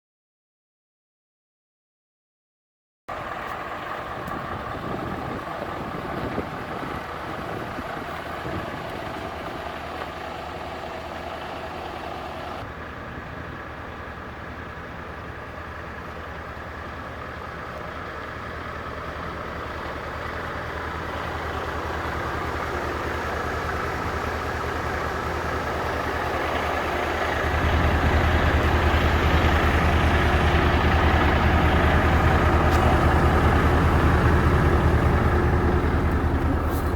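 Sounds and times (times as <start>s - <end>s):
diesel truck engine running: 3.1s - 36.9s.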